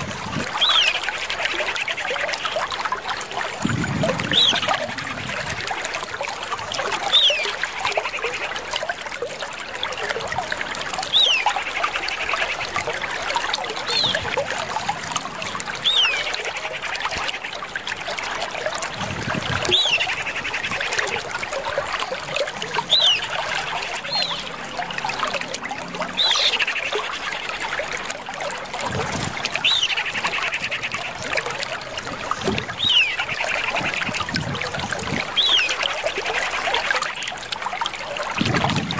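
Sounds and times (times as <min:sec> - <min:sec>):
bird whistle and buzzy trill: 0:00.6 - 0:02.6, 0:11.1 - 0:12.7, 0:15.8 - 0:17.3, 0:32.8 - 0:34.2.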